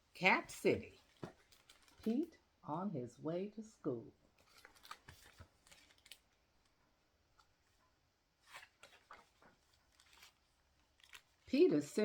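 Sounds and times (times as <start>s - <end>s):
book pages turning: 4.4s - 12.0s.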